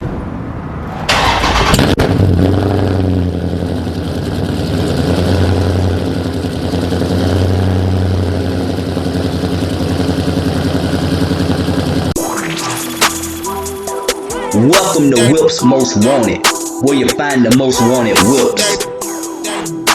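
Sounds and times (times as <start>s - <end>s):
car engine starting and idling: 0.0s - 14.0s
music: 12.2s - 19.9s.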